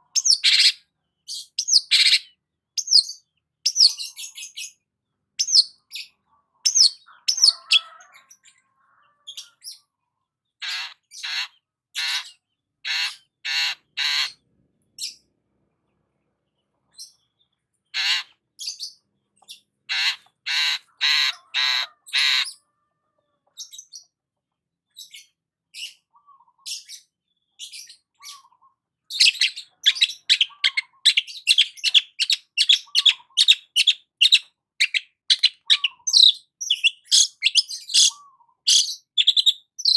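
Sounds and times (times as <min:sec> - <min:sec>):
shrike harsh raspy calls: 0:06.7 - 0:08.3, 0:10.6 - 0:14.4, 0:18.0 - 0:18.3, 0:19.9 - 0:22.6, 0:29.1 - 0:39.9.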